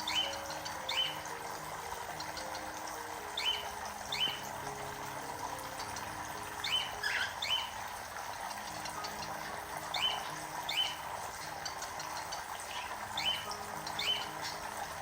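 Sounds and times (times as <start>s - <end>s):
steady background hiss: 0.0s - 15.0s
cockatiels chirping: 6.7s - 7.8s.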